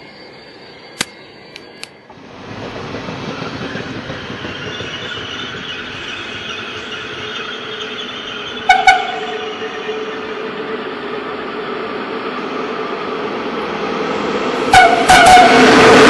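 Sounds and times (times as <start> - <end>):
train wheels squealing: 0.0 - 11.7
train rumble: 0.0 - 16.0
train horn toots: 8.7 - 9.9, 14.7 - 15.8.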